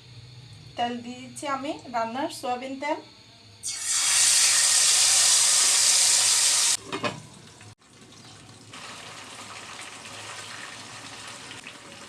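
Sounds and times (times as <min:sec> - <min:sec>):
chicken sizzling in frying pan: 0:03.7 - 0:06.8, 0:08.7 - 0:12.0.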